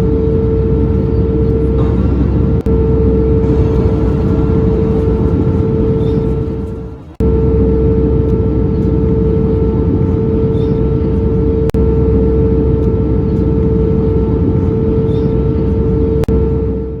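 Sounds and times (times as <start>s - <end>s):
jet engines droning: 0.3s - 10.0s.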